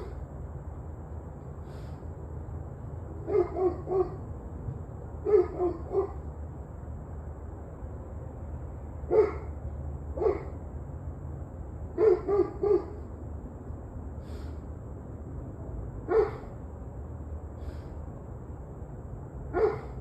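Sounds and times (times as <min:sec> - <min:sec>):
steady low rumble: 0:00.0 - 0:20.0
dog barking: 0:03.2 - 0:04.2, 0:05.2 - 0:06.2, 0:09.1 - 0:09.5, 0:10.2 - 0:10.6, 0:12.0 - 0:13.0, 0:16.1 - 0:16.5, 0:19.5 - 0:20.0.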